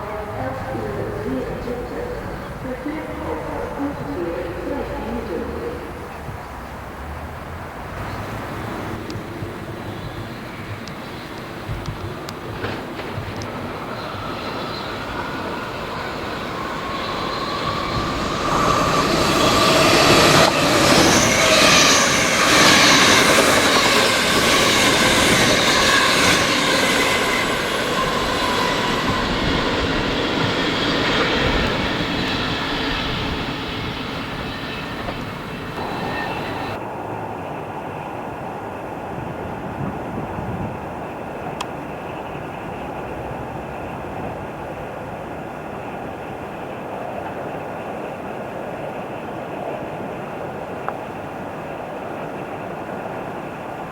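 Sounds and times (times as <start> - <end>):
electric train passing: 0.0 - 53.9
high-pitched whining and squealing: 10.6 - 36.8.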